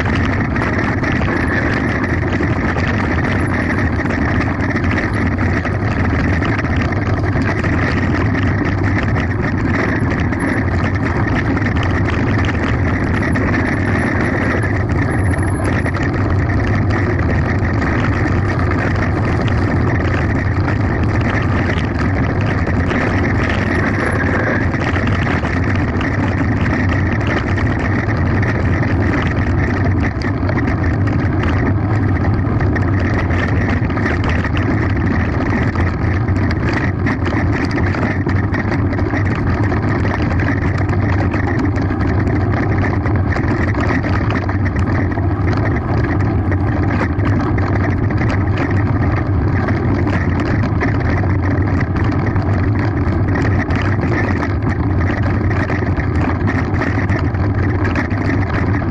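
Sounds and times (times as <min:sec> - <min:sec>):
mountain bike rattling downhill: 0:00.0 - 0:58.9
wind buffeting microphone: 0:00.0 - 0:58.9.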